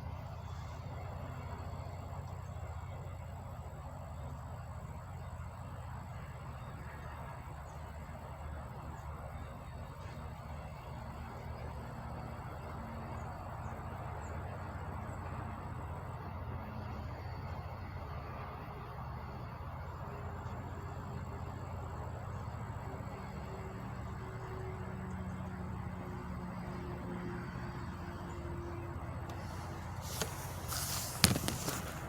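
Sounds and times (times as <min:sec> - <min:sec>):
low mechanical hum: 0:00.0 - 0:32.0
thin high whine: 0:26.4 - 0:32.0.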